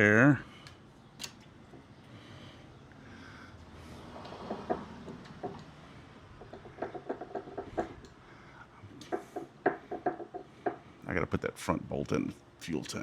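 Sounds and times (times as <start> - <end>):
clicks and taps on pipe fitting: 6.4 - 8.2, 9.0 - 10.8.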